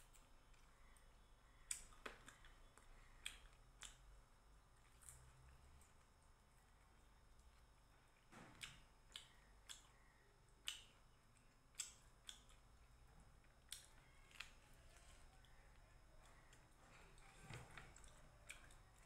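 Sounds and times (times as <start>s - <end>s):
quiet chewing: 0.0s - 19.0s
lip smacks and clicks: 1.7s - 4.1s, 10.6s - 12.7s.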